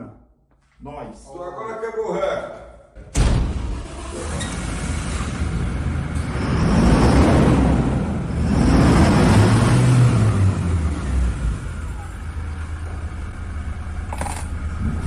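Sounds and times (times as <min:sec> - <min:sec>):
vehicle engine revving: 0:03.7 - 0:15.0.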